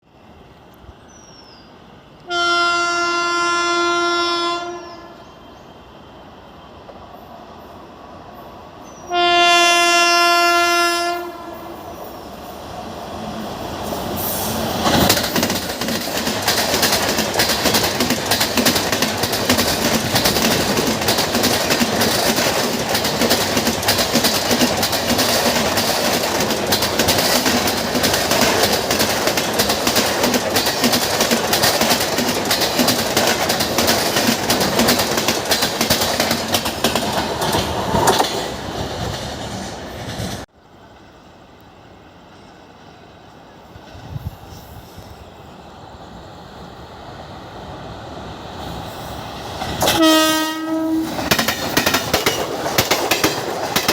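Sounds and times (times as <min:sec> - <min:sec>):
train horn blasts: 0:02.2 - 0:05.6, 0:09.1 - 0:11.9, 0:49.9 - 0:51.3
train wheels clacking: 0:13.8 - 0:40.5, 0:48.6 - 0:53.9.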